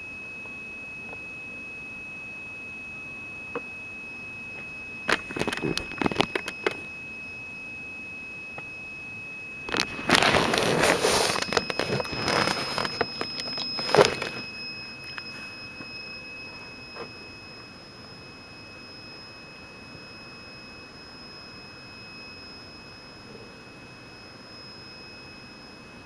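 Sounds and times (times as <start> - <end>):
high-pitched electronic whine: 0.0 - 26.0
crackling static: 5.1 - 6.9, 9.6 - 17.2.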